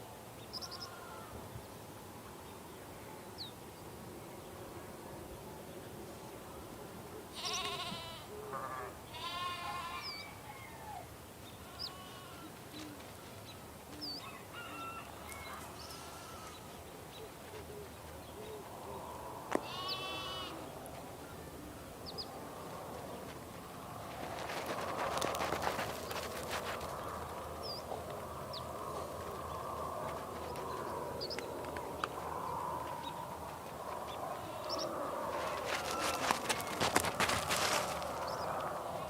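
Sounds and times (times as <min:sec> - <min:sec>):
small birds chirping: 0:00.4 - 0:01.1, 0:11.3 - 0:14.4, 0:15.2 - 0:39.0
sheep bleating: 0:07.3 - 0:10.2, 0:11.6 - 0:12.5, 0:15.8 - 0:16.6, 0:19.6 - 0:20.6.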